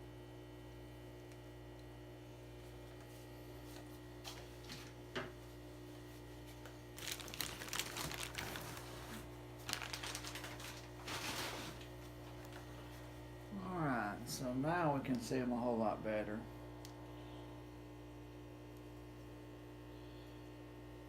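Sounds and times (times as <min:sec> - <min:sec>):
steady electrical hum: 0:00.0 - 0:21.0
plastic bag crinkling: 0:06.9 - 0:11.9.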